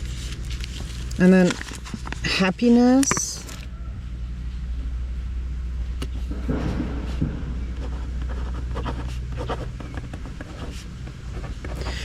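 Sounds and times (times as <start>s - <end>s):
low hum: 0.0s - 12.0s
pen scratching on paper: 7.8s - 12.0s.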